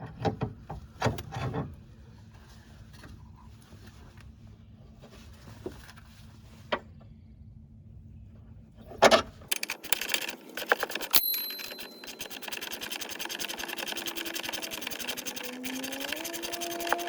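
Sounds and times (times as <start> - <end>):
impact wrench hammering: 11.0 - 17.0.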